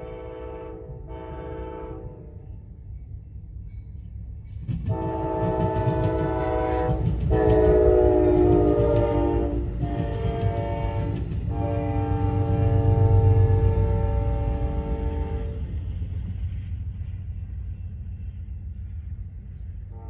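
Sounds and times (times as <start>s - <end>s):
locomotive horn blasts: 0.0s - 2.4s, 4.9s - 15.8s
train rumbling: 0.0s - 20.0s.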